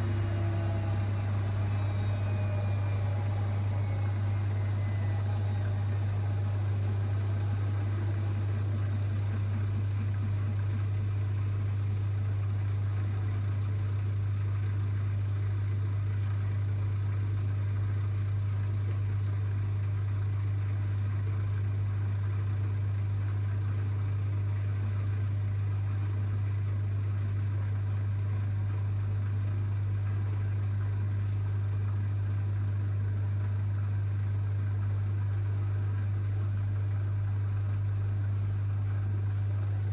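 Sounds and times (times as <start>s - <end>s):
washing machine spinning: 0.0s - 17.5s.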